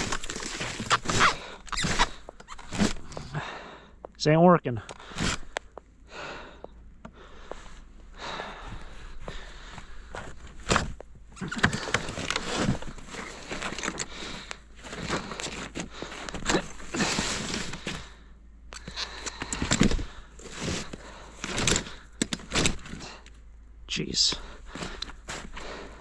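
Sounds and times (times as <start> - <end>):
snow crunching and scraping: 0.0 - 3.4, 7.5 - 18.2.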